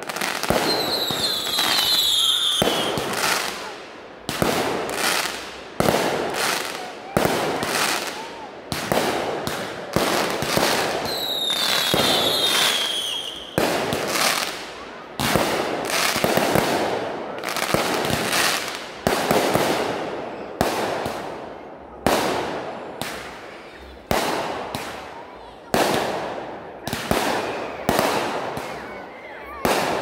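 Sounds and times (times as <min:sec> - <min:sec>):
fireworks banging: 0:00.0 - 0:25.1
high firework whistle: 0:00.5 - 0:03.2, 0:11.0 - 0:13.6.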